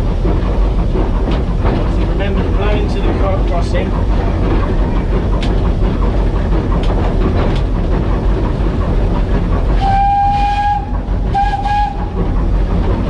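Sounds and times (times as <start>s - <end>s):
steam locomotive rumbling: 0.0s - 13.0s
wheels clicking over rail joints: 0.0s - 13.0s
steam whistle: 9.8s - 12.0s.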